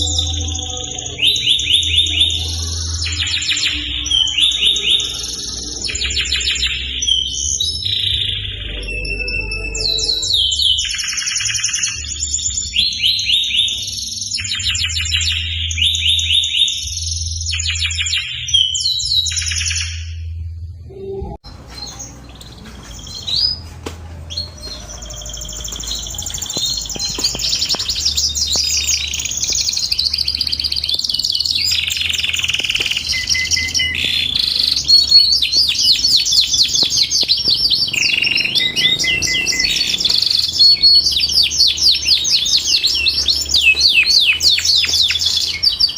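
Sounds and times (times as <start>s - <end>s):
canary singing trills: 0.0s - 20.3s, 20.9s - 45.9s.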